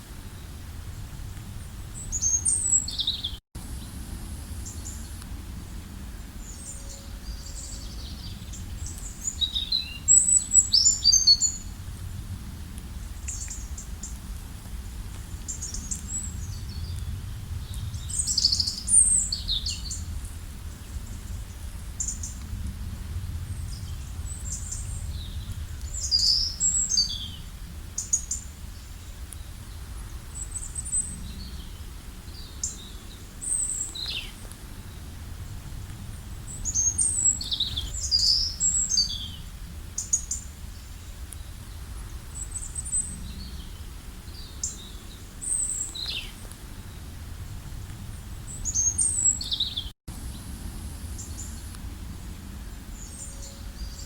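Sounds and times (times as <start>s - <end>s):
songbirds chirping and singing: 36.5s - 39.4s.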